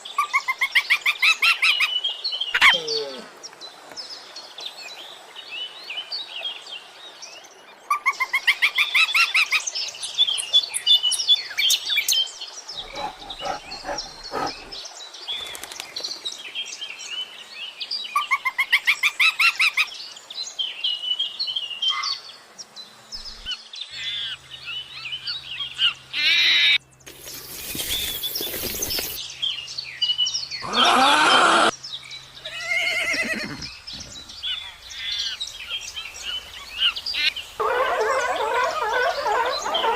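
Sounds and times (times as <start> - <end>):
birds chirping and calling: 12.8 - 14.8, 32.1 - 39.9.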